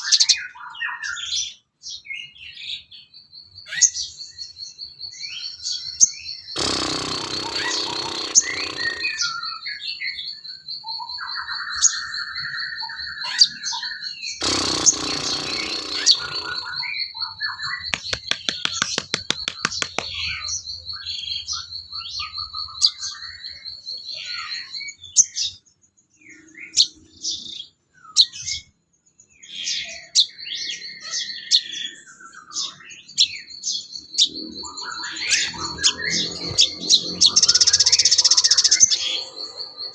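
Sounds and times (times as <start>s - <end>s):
songbirds chirping and whistling: 0.0s - 39.9s
high fast trill: 6.6s - 9.3s, 14.4s - 16.8s.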